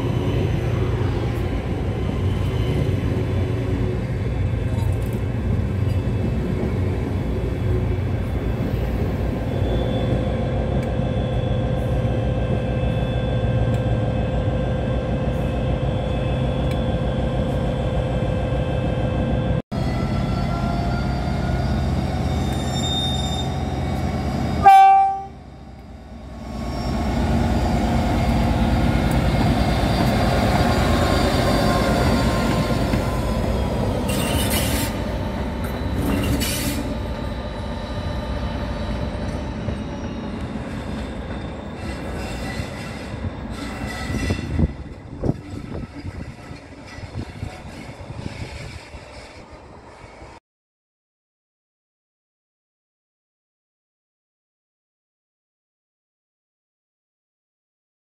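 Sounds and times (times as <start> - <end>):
electric train whine: 0.0 - 50.4
rumbling train wheels: 23.4 - 50.4
locomotive horn: 24.6 - 25.5.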